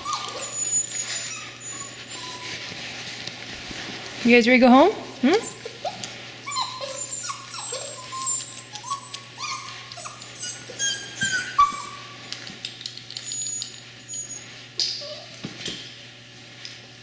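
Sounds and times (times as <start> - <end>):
puppies whining and squealing: 0.0 - 2.9, 5.0 - 12.3, 13.1 - 15.5.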